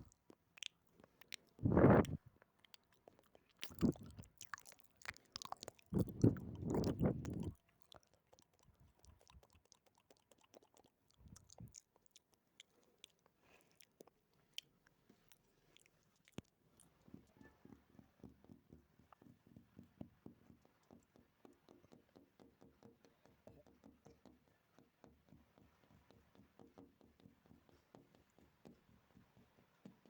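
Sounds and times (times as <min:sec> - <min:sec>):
wet mouth clicks and smacks: 0:00.0 - 0:17.1.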